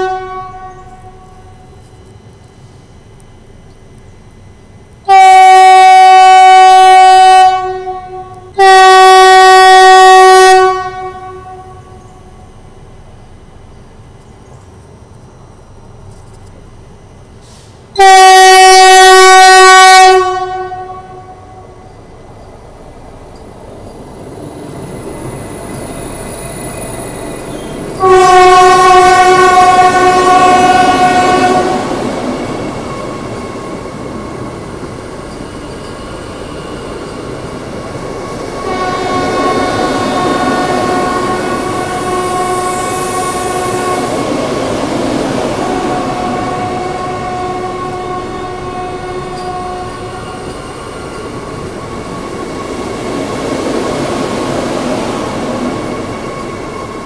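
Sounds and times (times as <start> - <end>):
train horn blast: 0.0 - 2.2, 5.0 - 12.1, 17.5 - 21.9, 27.9 - 32.2, 38.5 - 50.6
electric train rushing past: 0.0 - 57.0.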